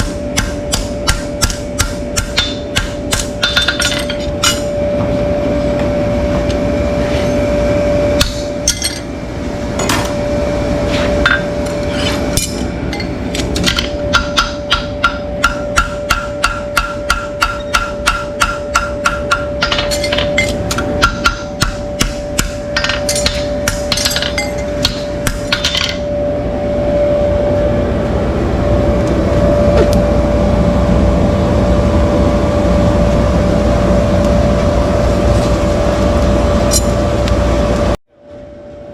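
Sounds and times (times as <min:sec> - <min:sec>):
constant hum: 0:00.0 - 0:38.9
steady rumbling noise: 0:22.6 - 0:38.0.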